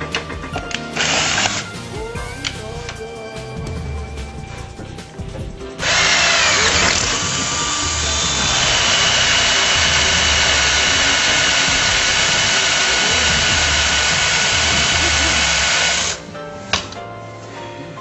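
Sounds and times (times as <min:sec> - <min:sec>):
power tool grinding metal: 0:01.0 - 0:01.8, 0:05.8 - 0:16.2.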